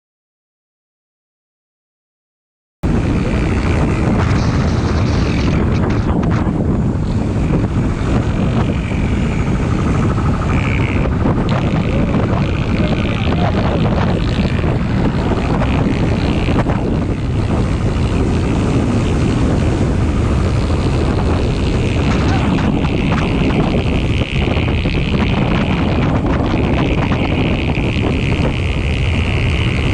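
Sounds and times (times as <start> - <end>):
motorcycle engine running: 2.8 - 29.9
wind rushing on microphone: 2.8 - 29.9.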